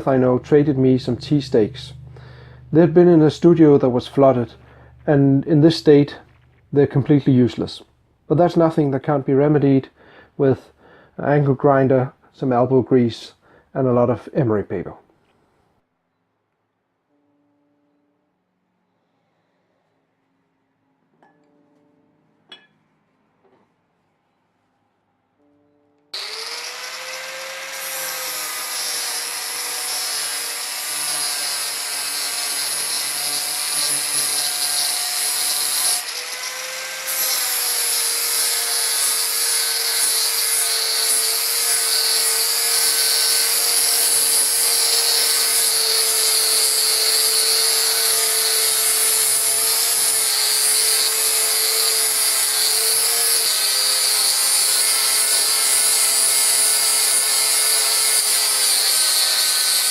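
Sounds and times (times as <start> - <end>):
angle grinder motor whine: 26.2 - 30.6
grinding rust off steel: 26.2 - 59.9.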